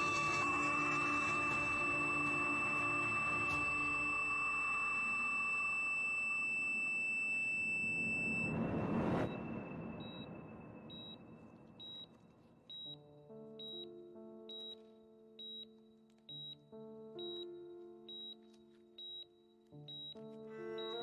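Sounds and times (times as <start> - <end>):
soft sustained music notes: 0.0 - 7.0, 19.7 - 21.0
patient monitor beeping: 0.0 - 8.5, 10.0 - 21.0
dramatic score with high tone: 0.0 - 12.3
whoosh: 8.0 - 11.9.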